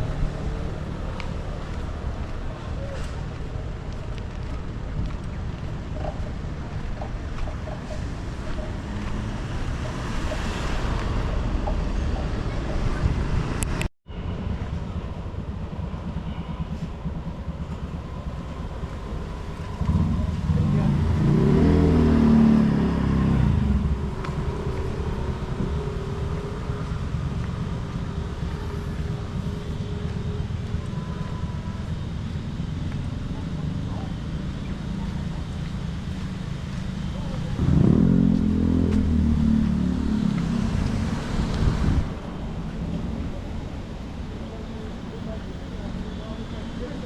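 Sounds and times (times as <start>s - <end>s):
low outdoor rumble: 0.0s - 47.0s
vehicle engine passing by: 5.5s - 13.9s, 17.6s - 47.0s
wind buffeting microphone: 40.2s - 45.0s.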